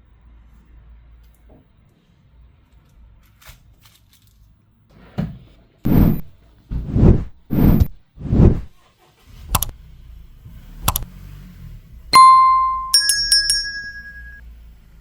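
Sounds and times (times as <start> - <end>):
sharp clicks: 9.5 - 9.7, 10.8 - 11.1
bell-like chime notes: 12.2 - 14.4
bright ding: 12.2 - 14.4.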